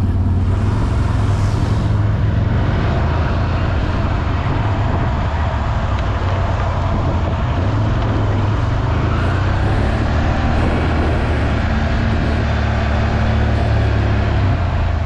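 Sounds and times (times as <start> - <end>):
off-road vehicle engine running: 0.0 - 15.0
tyres hissing through mud: 0.5 - 3.2.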